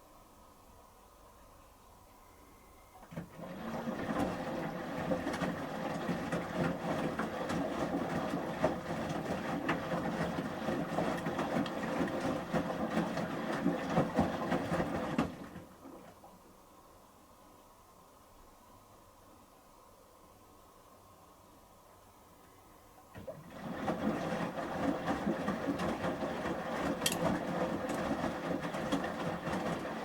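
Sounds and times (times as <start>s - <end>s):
washing machine motor hum: 2.7s - 16.4s, 23.0s - 30.0s
water sloshing: 23.1s - 30.0s.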